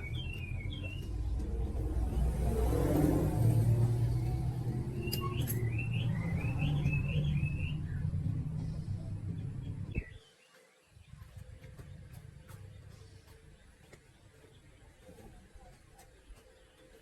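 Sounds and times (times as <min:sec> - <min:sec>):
small motorbike engine rumbling: 0:00.0 - 0:10.2
birds chirping: 0:00.0 - 0:17.0.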